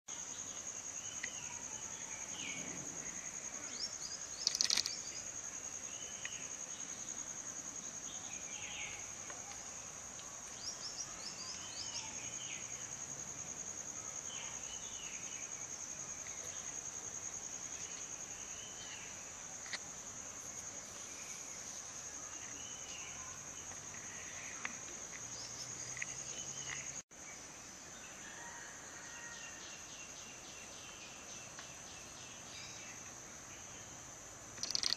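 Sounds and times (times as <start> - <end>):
high-pitched insect drone: 1.2 - 5.4, 34.6 - 34.9.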